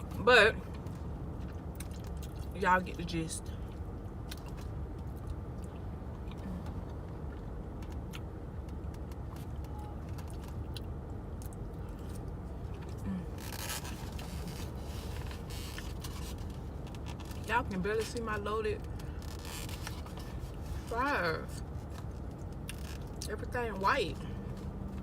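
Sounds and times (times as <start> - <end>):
low rumble inside a car: 0.0 - 25.0
scraping or rustling: 13.4 - 17.5, 19.0 - 21.0.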